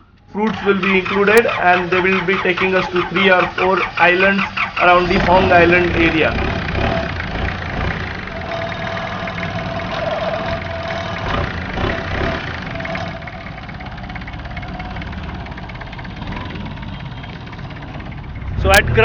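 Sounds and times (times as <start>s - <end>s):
boat engine rumbling: 0.0s - 19.0s.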